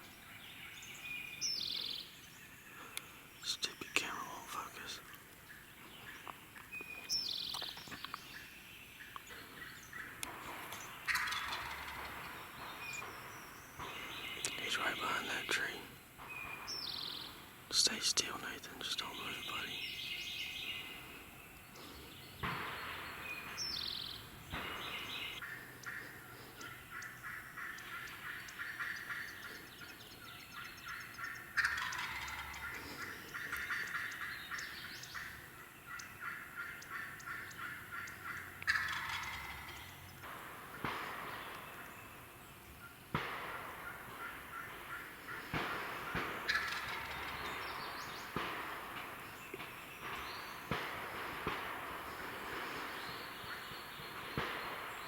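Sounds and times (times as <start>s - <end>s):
turkey gobbling: 9.0s - 13.2s, 24.6s - 41.4s, 43.4s - 49.1s.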